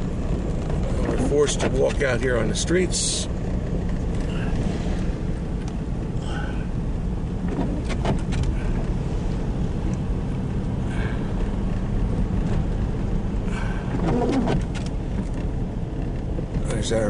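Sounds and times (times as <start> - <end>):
engine and tyre rumble: 0.0 - 17.0
short squeaks: 13.9 - 14.8.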